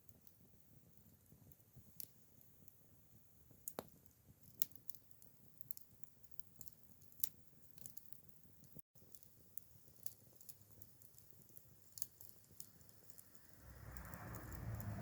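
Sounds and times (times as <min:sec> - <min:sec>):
campfire crackling: 0:00.0 - 0:15.0
low hiss: 0:00.0 - 0:15.0.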